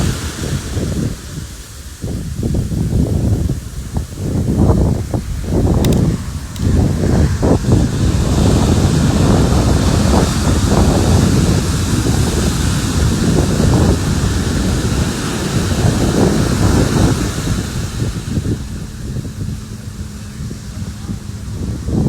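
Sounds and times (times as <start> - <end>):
ocean surf breaking: 0.0 - 22.0
wind buffeting microphone: 0.0 - 22.0.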